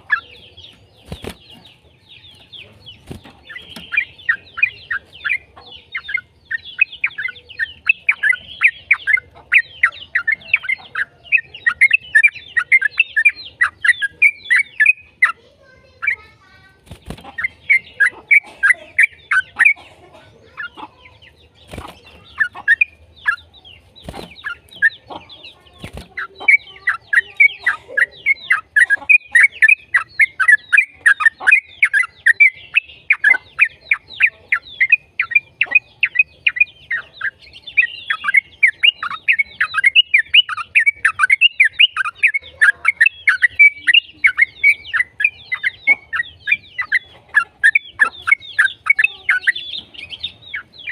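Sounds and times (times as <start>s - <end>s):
bulbul singing rapid notes: 0.0s - 15.4s.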